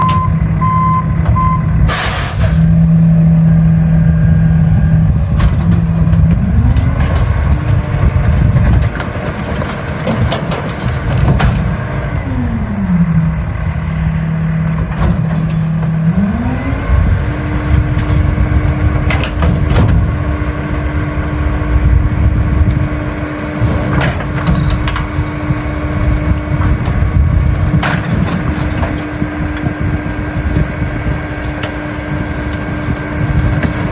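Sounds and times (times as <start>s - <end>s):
short beeps: 0.0s - 1.8s
garbage truck diesel engine: 0.0s - 33.9s
sharp air hiss: 1.9s - 2.6s.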